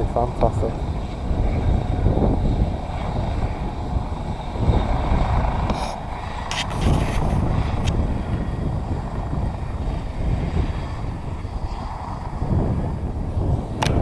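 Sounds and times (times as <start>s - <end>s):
helicopter rotor and turbine: 0.0s - 14.0s.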